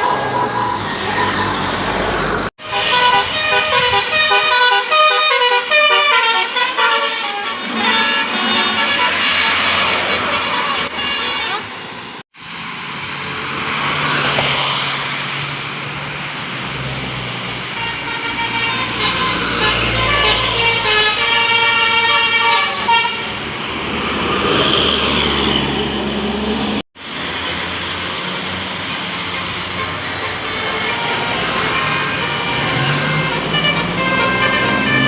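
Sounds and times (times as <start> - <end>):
bus engine and road noise: 0.0 - 35.0
musical bus horn tune: 2.6 - 11.9, 17.7 - 23.4, 29.2 - 35.0.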